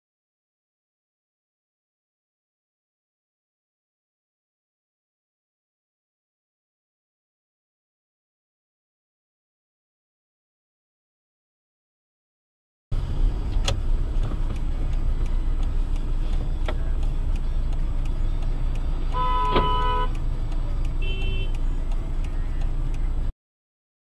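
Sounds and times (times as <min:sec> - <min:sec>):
car road and engine rumble: 0:12.9 - 0:23.3
sharp clicks: 0:13.4 - 0:23.2
car horn: 0:19.1 - 0:20.2, 0:21.0 - 0:21.7.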